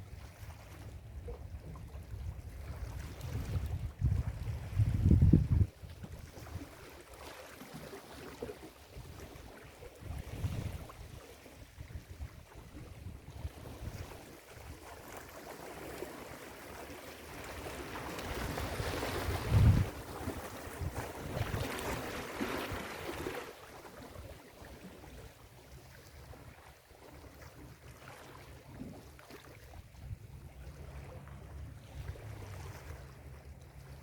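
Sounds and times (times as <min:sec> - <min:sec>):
wind gusts on microphone: 0:02.6 - 0:06.7, 0:10.0 - 0:11.2, 0:18.4 - 0:23.2.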